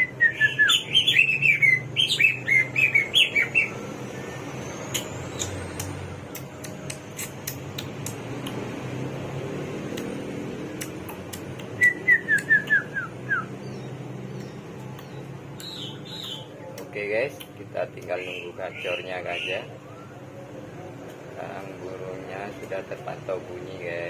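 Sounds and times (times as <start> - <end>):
bird whistling: 0.0 - 5.6, 11.8 - 13.9, 15.6 - 16.5
sharp clicks: 4.9 - 8.7, 9.9 - 12.8, 14.3 - 18.1.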